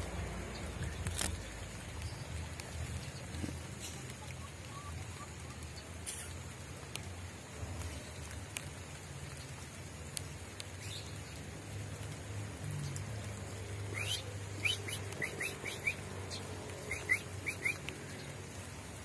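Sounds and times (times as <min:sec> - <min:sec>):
bird chirping: 0:13.9 - 0:18.4.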